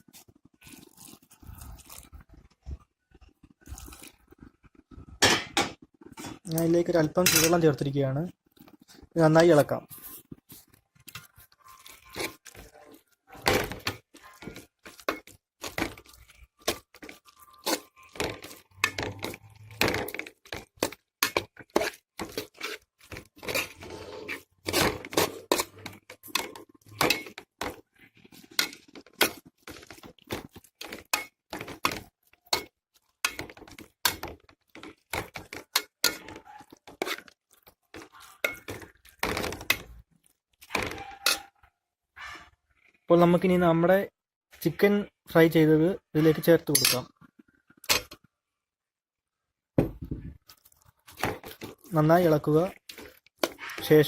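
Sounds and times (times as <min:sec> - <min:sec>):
utensil scraping and knocking pan: 0:11.1 - 0:40.0, 0:52.7 - 0:54.0.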